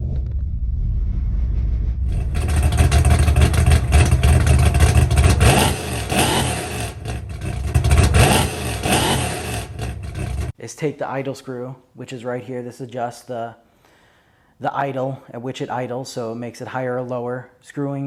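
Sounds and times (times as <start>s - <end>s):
pit bike engine revving: 2.1s - 10.5s.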